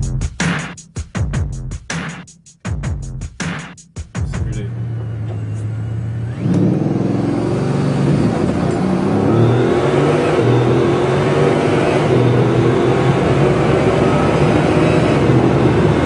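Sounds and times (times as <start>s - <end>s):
car engine idling and revving: 4.2s - 16.0s.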